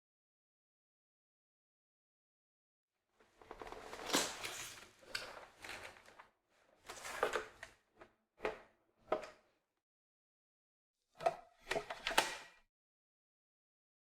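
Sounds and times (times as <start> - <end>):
plastic parts scraping and clicking: 11.2 - 12.6.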